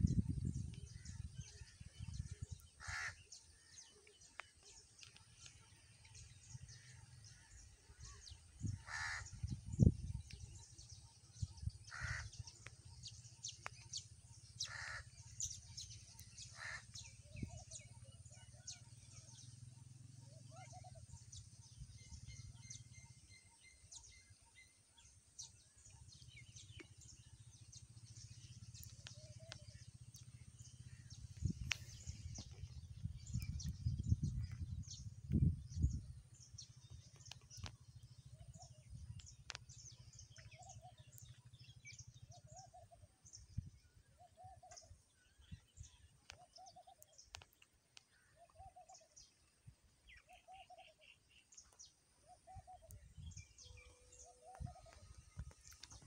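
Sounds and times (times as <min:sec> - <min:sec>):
low rumble on microphone: 0:00.0 - 0:02.7, 0:06.1 - 0:13.4, 0:26.1 - 0:44.0
lower arched bird call: 0:02.8 - 0:03.4, 0:06.9 - 0:09.9, 0:11.9 - 0:12.5, 0:14.6 - 0:18.6.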